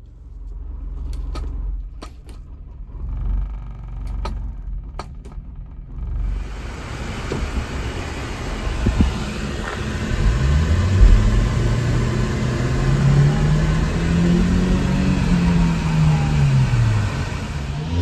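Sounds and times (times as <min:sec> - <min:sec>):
road and cabin noise: 0:00.0 - 0:18.0
small truck engine accelerating: 0:05.9 - 0:18.0.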